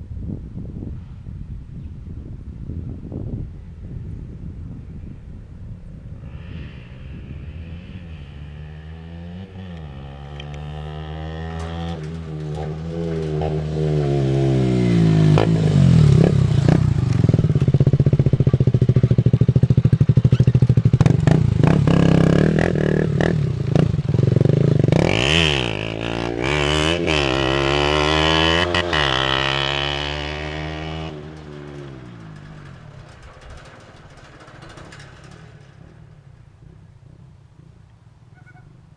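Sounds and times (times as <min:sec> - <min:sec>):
motorcycle engine revving: 0:06.2 - 0:38.9.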